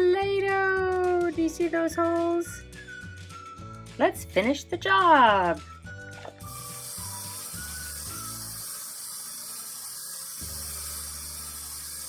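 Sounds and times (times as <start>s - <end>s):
soft music with low bass: 0.0s - 8.5s.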